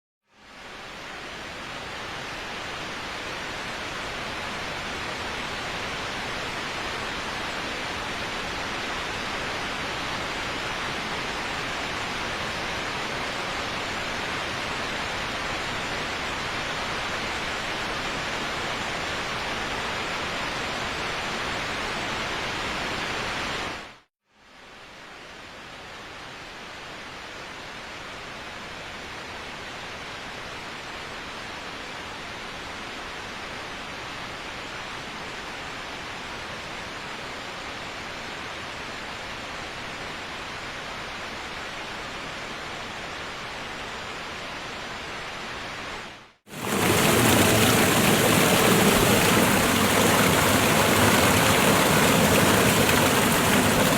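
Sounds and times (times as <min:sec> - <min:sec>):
waterfall rushing water: 0:46.5 - 0:53.9.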